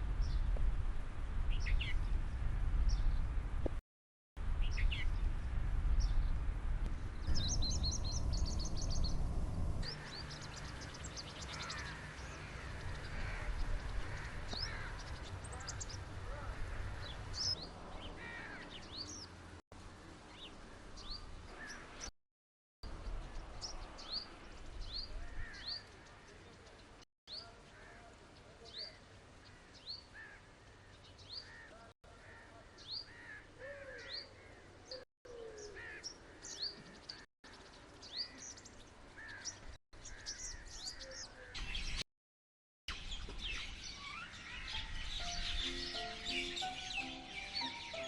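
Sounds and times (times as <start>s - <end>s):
birds chirping and calling: 7.2s - 9.2s, 9.8s - 19.3s, 28.7s - 42.0s, 42.9s - 48.0s
bird trill: 42.9s - 48.0s.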